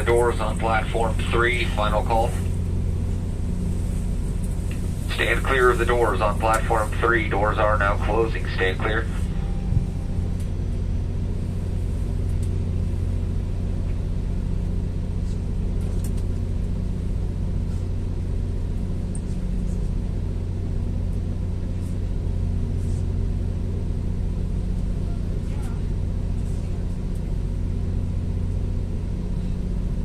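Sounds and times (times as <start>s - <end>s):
train running with low drone: 0.0s - 30.0s.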